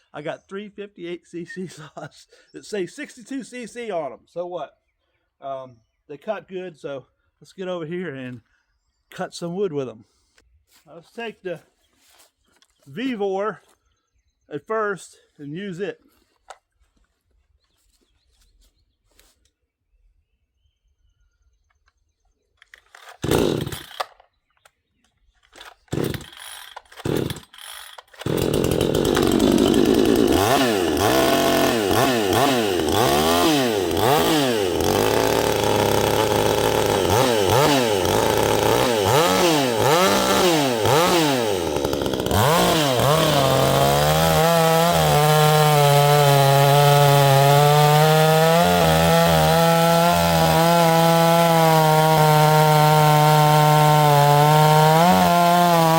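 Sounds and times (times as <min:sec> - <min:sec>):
chainsaw starter cord pulls: 0:22.6 - 0:24.3, 0:25.4 - 0:55.9
chainsaw engine revving: 0:23.1 - 0:24.1, 0:25.6 - 0:55.9.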